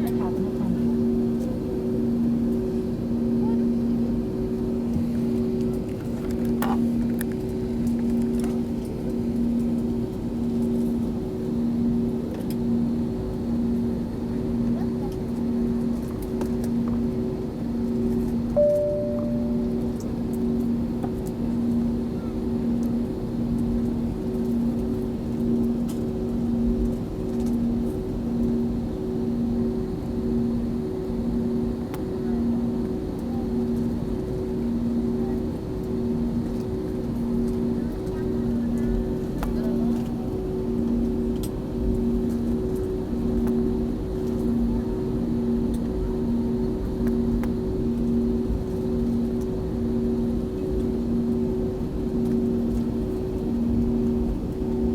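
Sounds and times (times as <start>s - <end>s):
airplane cabin hum: 0.0s - 54.9s
low droning tones: 18.6s - 20.1s.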